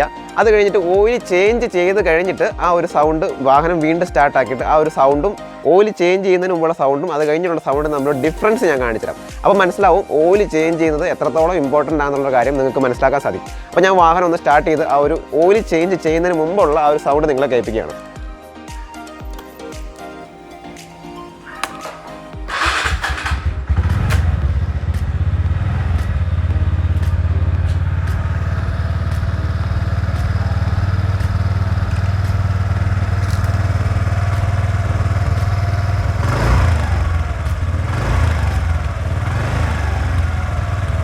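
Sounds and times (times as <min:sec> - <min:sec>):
scooter engine idling: 0:21.4 - 0:41.0
scooter starter whir: 0:21.4 - 0:41.0.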